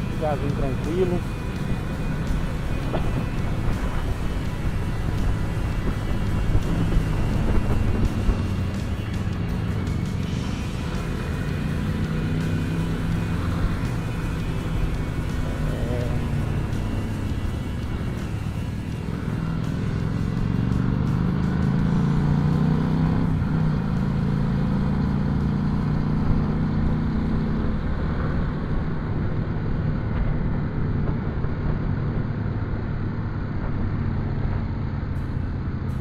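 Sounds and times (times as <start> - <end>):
motorcycle engine running: 0.0 - 36.0
wind rushing over microphone: 2.0 - 10.6.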